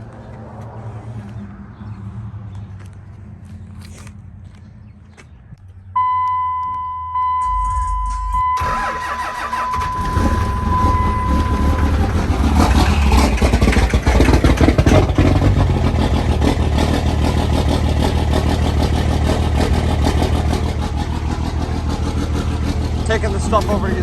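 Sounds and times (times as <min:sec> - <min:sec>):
electronic chime tone: 0:06.0 - 0:12.2
diesel engine starting and revving: 0:07.4 - 0:24.0.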